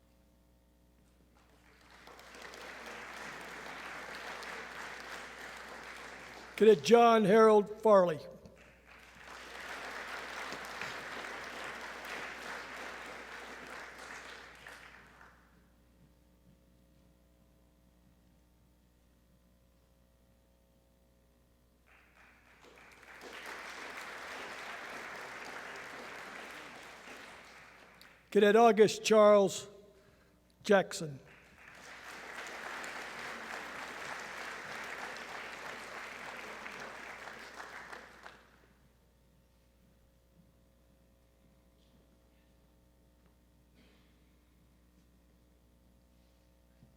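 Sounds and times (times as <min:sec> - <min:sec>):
audience applauding: 0:01.4 - 0:07.3, 0:08.6 - 0:15.4, 0:21.9 - 0:28.6, 0:31.3 - 0:38.6.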